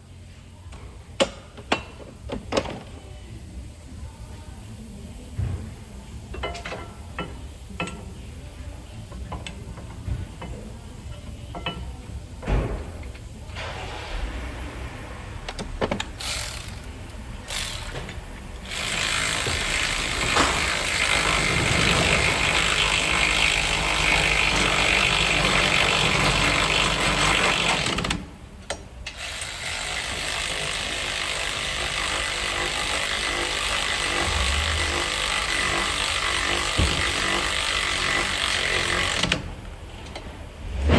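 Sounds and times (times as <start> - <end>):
hand tools clicking and clanking: 15.5 - 40.2
loud power tool running: 16.2 - 18.0, 18.6 - 28.1, 29.1 - 39.4.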